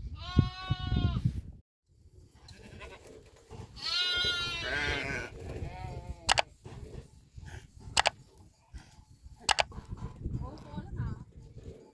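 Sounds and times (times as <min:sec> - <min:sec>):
goat bleating: 0:02.5 - 0:03.1, 0:03.8 - 0:06.3.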